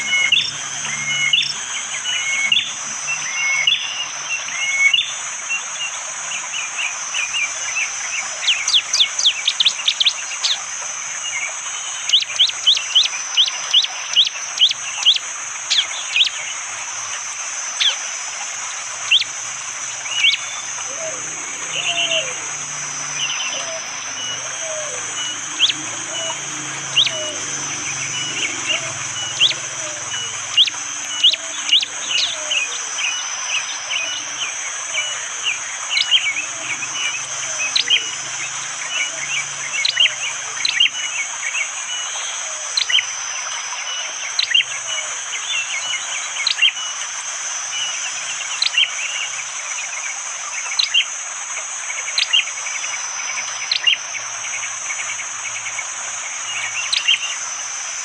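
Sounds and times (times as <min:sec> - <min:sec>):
bird sharp piercing calls: 0:00.0 - 0:05.3, 0:18.6 - 0:43.1, 0:56.4 - 0:57.4
high insect drone: 0:00.0 - 0:58.0.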